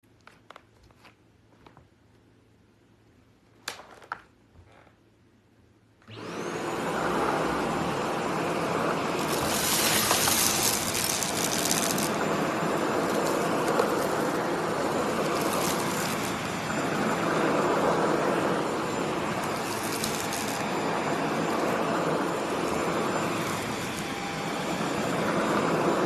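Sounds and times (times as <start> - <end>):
stick vacuum running: 6.1 - 26.0
sharp crackly hiss: 9.2 - 17.2, 19.0 - 21.6.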